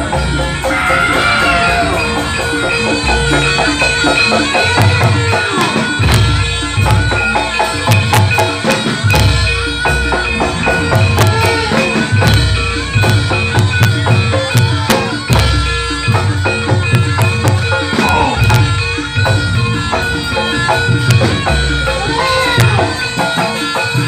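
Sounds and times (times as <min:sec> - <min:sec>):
gamelan metallic strikes: 0:00.0 - 0:24.0
low drum beats: 0:00.0 - 0:24.0.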